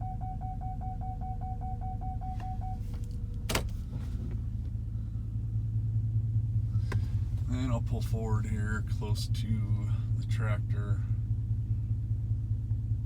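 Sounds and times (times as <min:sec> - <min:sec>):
rapid proximity warning beeps: 0:00.0 - 0:02.9
engine idling: 0:00.0 - 0:13.0.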